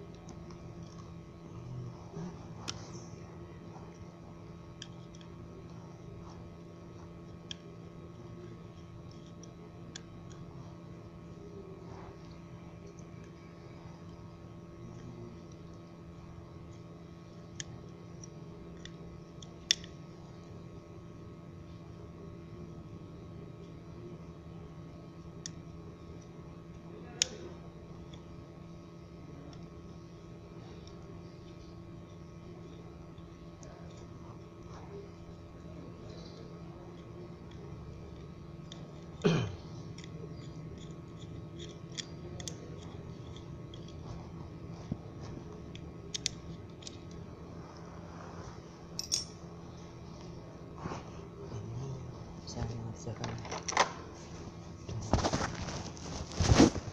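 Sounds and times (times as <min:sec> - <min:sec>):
steady low hum: 0:00.0 - 0:56.9
small parts and tools clicking: 0:36.1 - 0:44.1, 0:45.3 - 0:47.4, 0:48.9 - 0:49.4.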